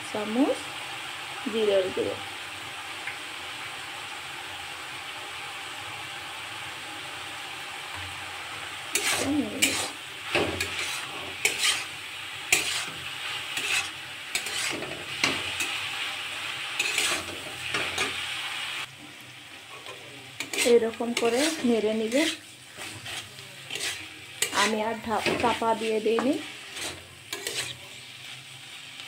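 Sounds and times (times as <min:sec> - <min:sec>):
food sizzling in a pan: 0:00.0 - 0:29.0
spatula scraping the pan: 0:08.7 - 0:18.4, 0:19.7 - 0:28.6.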